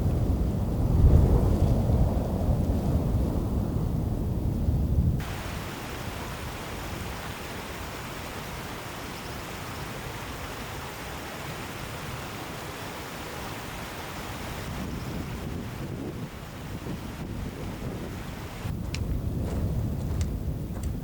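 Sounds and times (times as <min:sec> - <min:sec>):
deep rumble: 0:00.0 - 0:05.6, 0:15.2 - 0:21.0
outdoor rushing hiss: 0:05.2 - 0:18.7.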